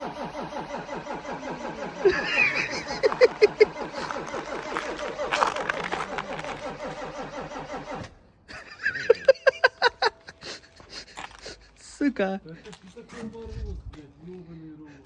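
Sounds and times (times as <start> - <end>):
diesel engine clatter: 0.0 - 8.2
engine knocks: 0.0 - 8.2.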